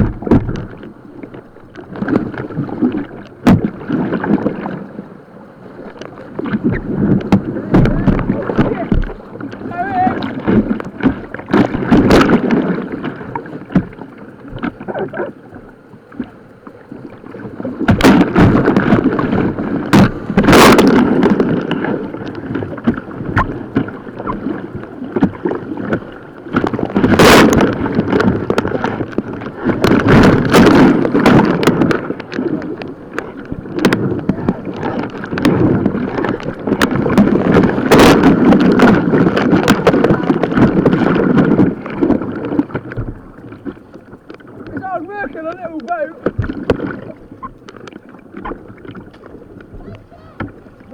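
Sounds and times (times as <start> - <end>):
water rushing and splashing: 0.0 - 50.9
wind buffeting microphone: 0.0 - 50.9
sharp splashes or knocks: 17.9 - 21.8, 33.2 - 41.6.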